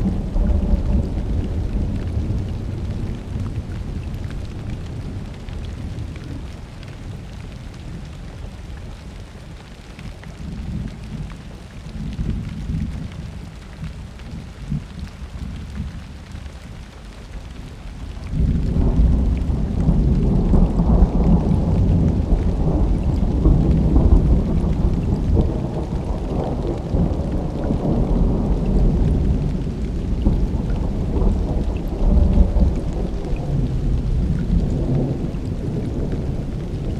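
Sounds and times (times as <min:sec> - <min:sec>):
thunder rumbling: 0:00.0 - 0:07.1, 0:18.0 - 0:36.9
steady rain: 0:00.0 - 0:36.9.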